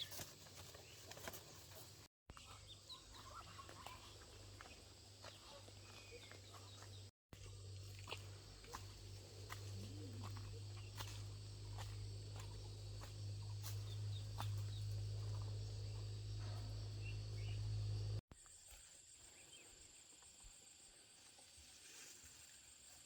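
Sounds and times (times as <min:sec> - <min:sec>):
crickets trilling: 0:04.2 - 0:18.2
loud low hum: 0:06.9 - 0:18.2.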